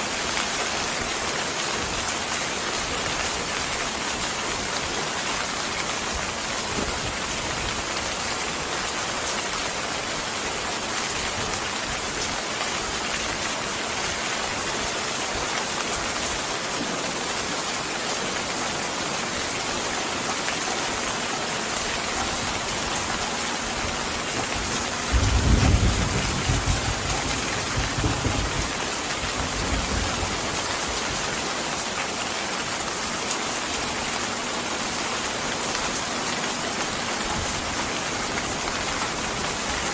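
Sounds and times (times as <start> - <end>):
rain falling: 0.0 - 39.9
low roll of thunder: 24.5 - 30.5.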